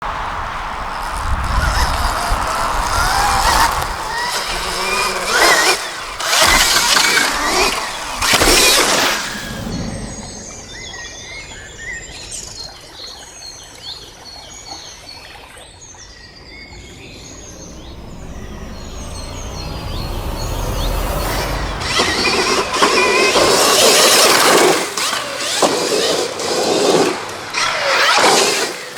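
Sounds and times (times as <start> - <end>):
electric dirt bike riding past: 0.1 - 11.5, 16.5 - 28.9
birds chirping: 0.1 - 28.9.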